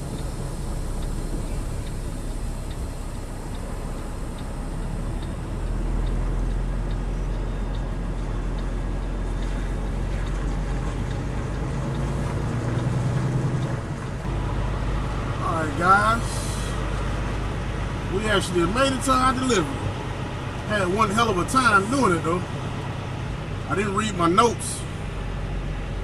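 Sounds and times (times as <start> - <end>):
diesel truck engine running: 0.0 - 26.0
light repeating tick: 1.0 - 12.9, 13.5 - 13.8.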